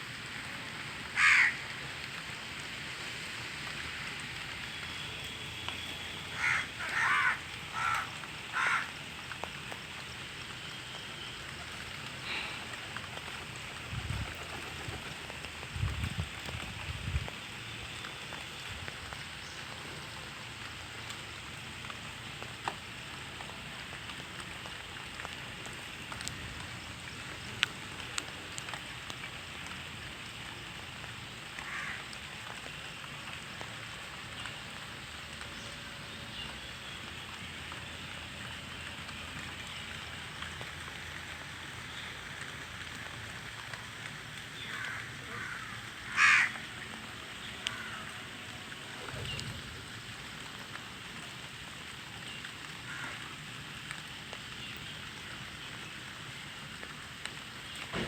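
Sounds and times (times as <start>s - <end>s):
steady rain: 0.0s - 58.0s
water drips: 0.1s - 58.0s
crows cawing: 1.2s - 1.8s, 6.3s - 9.1s, 31.6s - 32.2s, 44.6s - 48.3s, 52.9s - 53.3s.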